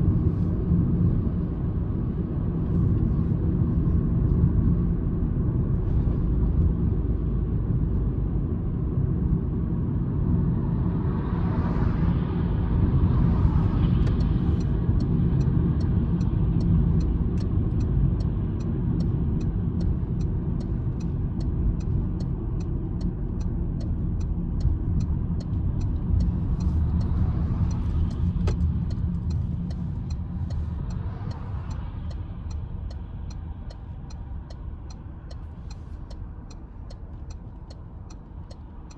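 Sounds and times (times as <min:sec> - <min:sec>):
car engine and tyre rumble: 0:00.0 - 0:38.9
turn signal ticking: 0:13.6 - 0:38.9.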